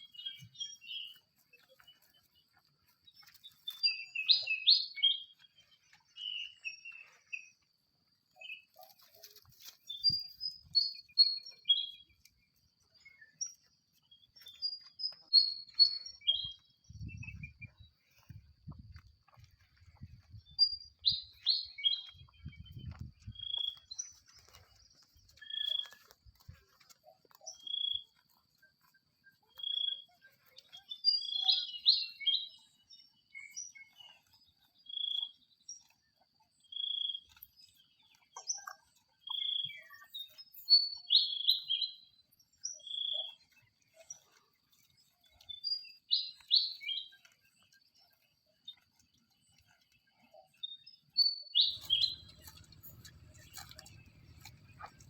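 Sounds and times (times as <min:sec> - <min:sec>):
birds quick chirping: 0:51.6 - 0:55.0.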